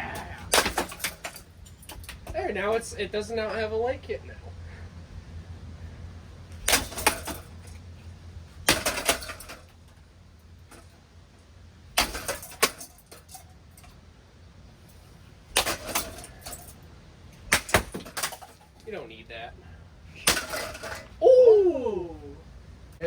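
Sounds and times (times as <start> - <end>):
metallic clattering and rattling: 0.0 - 3.3, 6.4 - 11.0, 11.8 - 14.0, 14.8 - 19.0, 20.1 - 21.2
low steady hum: 0.0 - 23.0.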